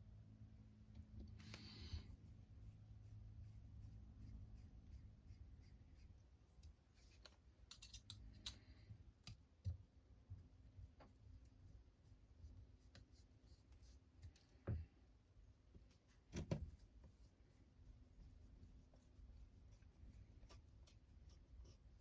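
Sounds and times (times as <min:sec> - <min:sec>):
low steady hum: 0:00.0 - 0:22.0
small parts clicking and rattling: 0:07.2 - 0:09.4.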